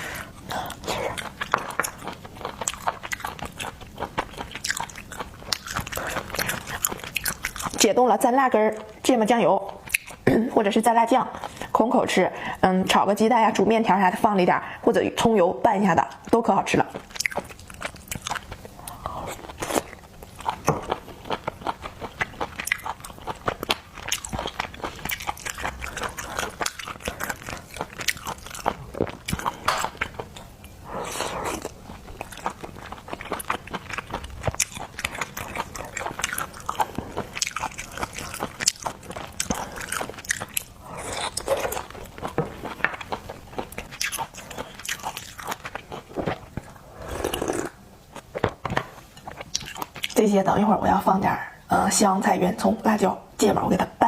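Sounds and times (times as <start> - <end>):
crunching and chewing: 0.0 - 7.8, 16.9 - 50.2.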